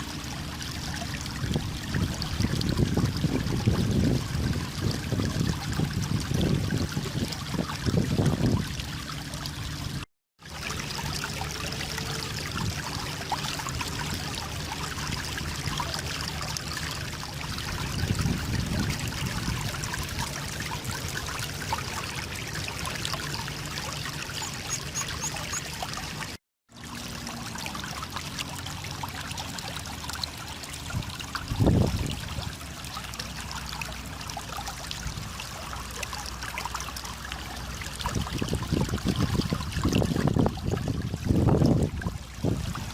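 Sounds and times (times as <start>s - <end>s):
running water rushing: 0.0s - 42.9s.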